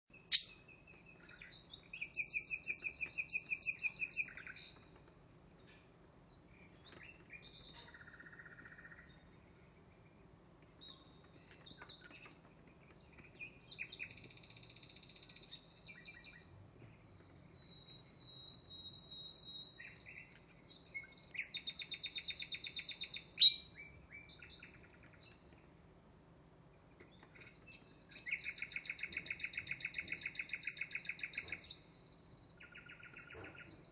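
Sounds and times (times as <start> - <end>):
recorded nightingale song: 0.0 - 33.9.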